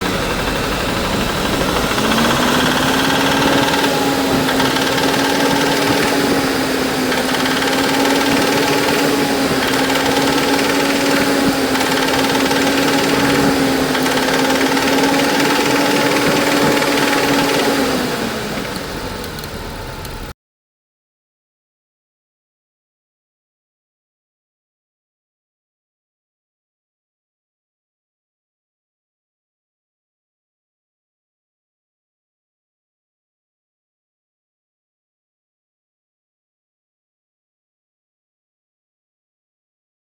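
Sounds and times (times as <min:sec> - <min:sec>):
abnormal car engine noise: 0:00.0 - 0:20.3.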